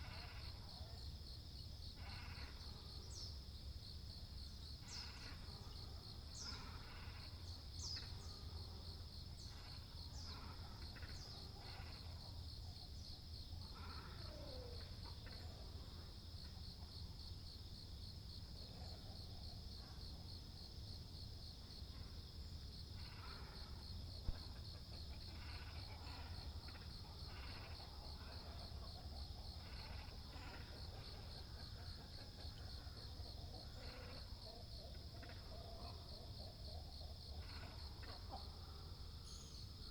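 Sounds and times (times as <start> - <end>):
high-pitched insect trill: 0.0 - 18.3.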